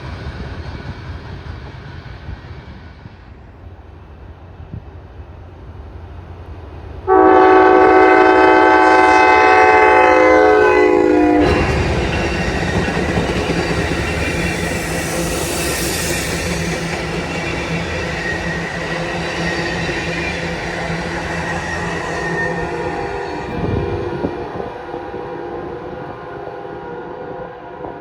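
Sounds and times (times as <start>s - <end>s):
train wheels on rails: 0.0s - 28.0s
train horn blast: 7.1s - 12.4s, 20.5s - 28.0s.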